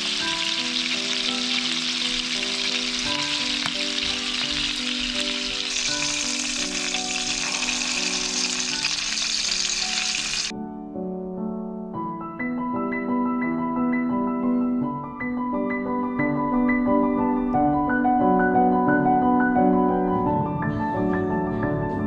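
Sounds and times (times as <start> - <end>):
fish sizzling in hot oil: 0.0 - 10.5
soft piano music: 0.0 - 22.0.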